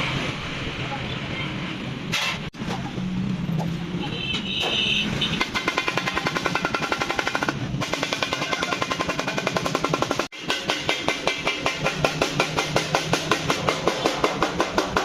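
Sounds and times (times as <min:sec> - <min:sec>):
rapid sharp strikes: 0:05.4 - 0:15.0.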